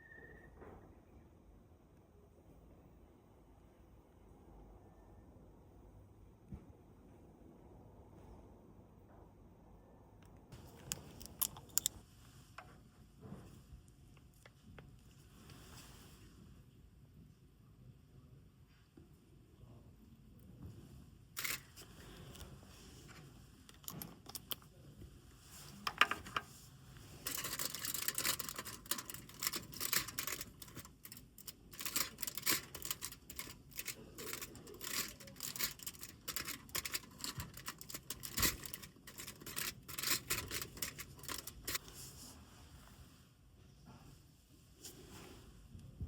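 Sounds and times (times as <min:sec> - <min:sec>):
small objects clicking and clinking: 0:10.8 - 0:11.9, 0:27.2 - 0:41.8.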